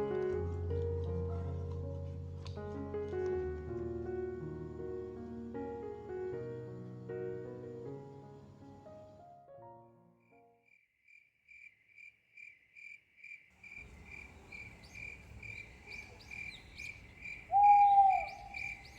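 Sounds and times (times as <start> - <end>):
piano music: 0.0 - 10.6
outdoor background hiss: 4.1 - 9.7, 13.6 - 18.9
cricket chirping: 10.6 - 18.9
small birds chirping: 13.6 - 18.9.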